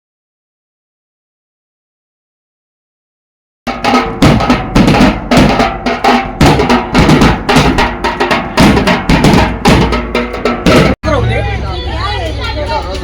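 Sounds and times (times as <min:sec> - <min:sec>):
drum-heavy music with fast beat: 0:03.7 - 0:11.0.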